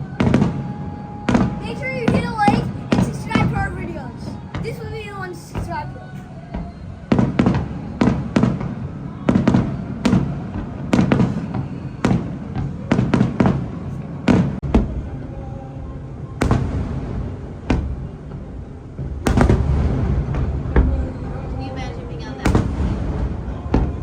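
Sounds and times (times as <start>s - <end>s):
fireworks bursting: 0.2s - 15.0s, 19.0s - 21.3s, 22.4s - 24.0s.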